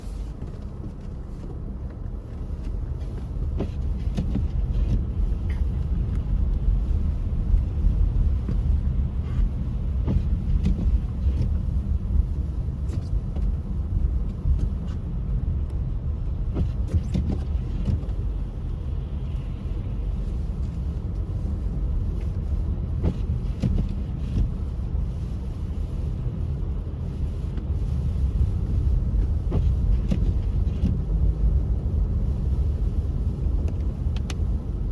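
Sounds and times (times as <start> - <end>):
engine and tyres rumbling: 0.0 - 34.9
light clicks and ticks: 33.5 - 34.7.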